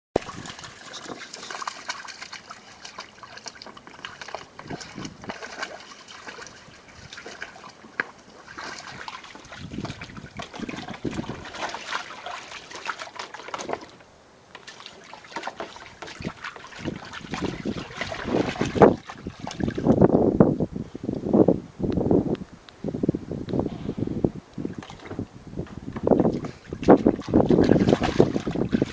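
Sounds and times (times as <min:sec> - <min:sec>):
puppy splashing in pool water: 0:00.2 - 0:14.0, 0:14.6 - 0:20.0, 0:26.2 - 0:28.9.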